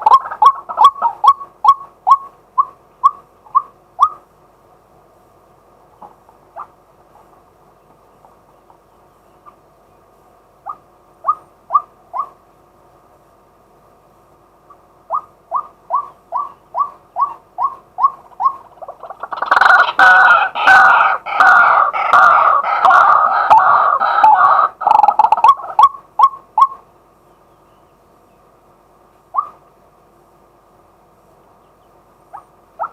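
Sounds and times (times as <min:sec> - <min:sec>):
waterhen calling: 0:00.0 - 0:04.3, 0:10.6 - 0:12.4, 0:14.7 - 0:26.9, 0:29.3 - 0:29.7, 0:31.8 - 0:32.9.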